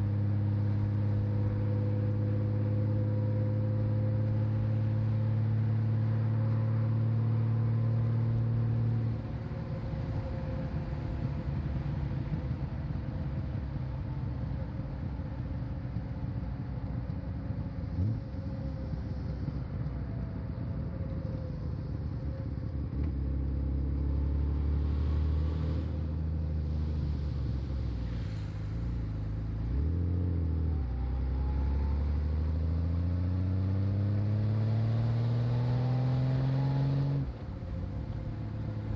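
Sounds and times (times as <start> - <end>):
motorcycle engine running: 14.3 - 24.4.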